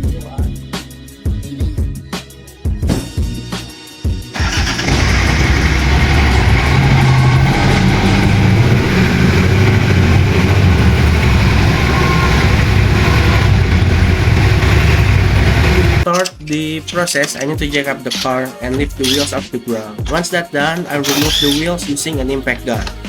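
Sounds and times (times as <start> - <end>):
car engine running: 4.4 - 16.0.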